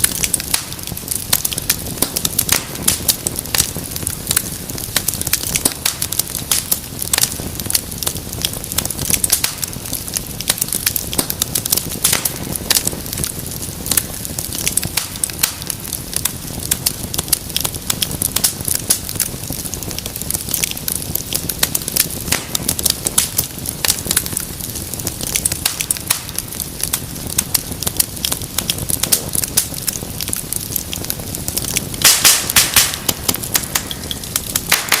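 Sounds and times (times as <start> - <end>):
low rush of flame: 0.0 - 35.0
wood fire crackling and popping: 0.0 - 35.0.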